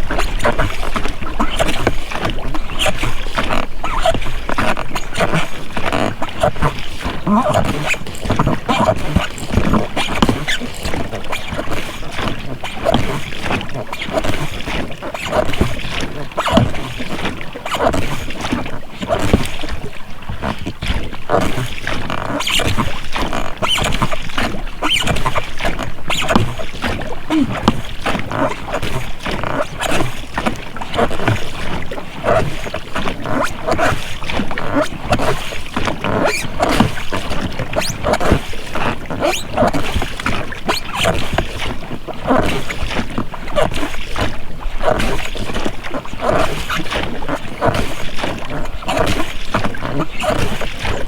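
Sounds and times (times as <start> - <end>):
rowlocks creaking and knocking: 0.0 - 13.2, 14.0 - 41.2
oar blades splashing and dripping: 0.0 - 51.0.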